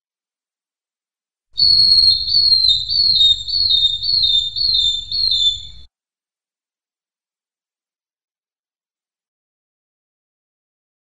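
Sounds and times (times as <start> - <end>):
bird whistling high notes: 1.6 - 5.9.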